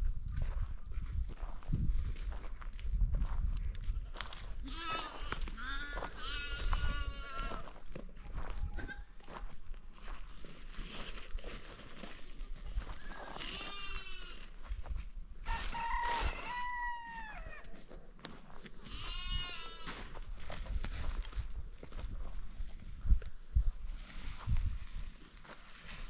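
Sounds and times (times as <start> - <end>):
goats bleating: 4.6 - 7.7, 13.3 - 14.5, 18.8 - 20.0.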